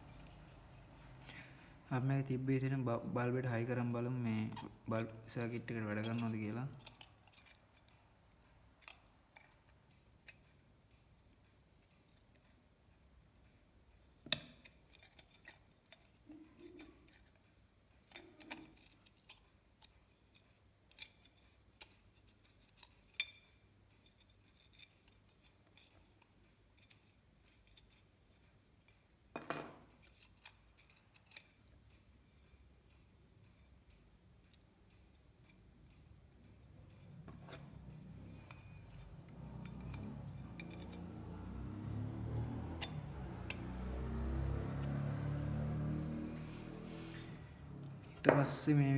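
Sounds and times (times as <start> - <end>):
small clicks and clinks of tools: 4.5 - 8.0, 14.2 - 28.0, 37.3 - 44.0.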